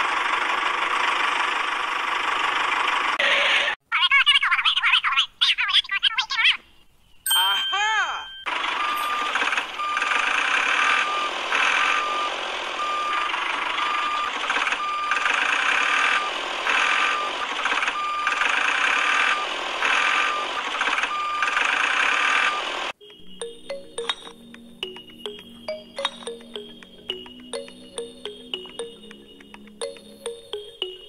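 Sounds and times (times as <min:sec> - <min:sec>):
engine running: 0:00.0 - 0:03.7, 0:08.5 - 0:31.0
reversing alarm beeping: 0:08.3 - 0:31.0.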